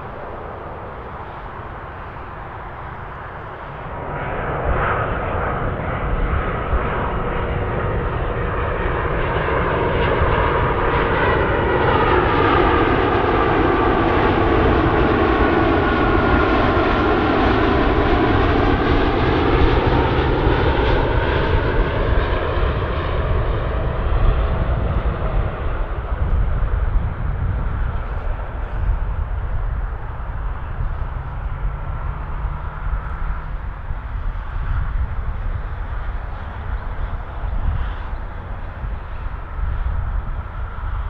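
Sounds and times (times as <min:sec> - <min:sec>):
jet airliner passing overhead: 0:00.0 - 0:41.0.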